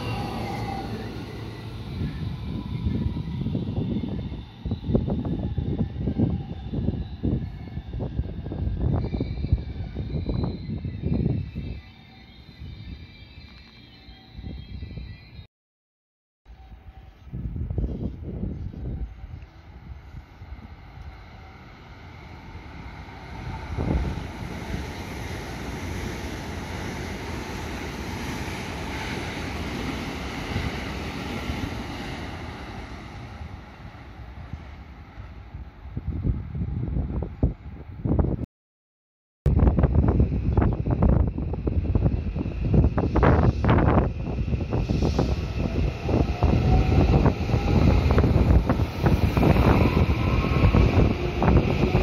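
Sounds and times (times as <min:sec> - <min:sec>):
electric train running past: 0:00.0 - 0:15.5, 0:16.5 - 0:38.2, 0:39.6 - 0:52.0
train wheels rumbling on rail: 0:39.7 - 0:52.0.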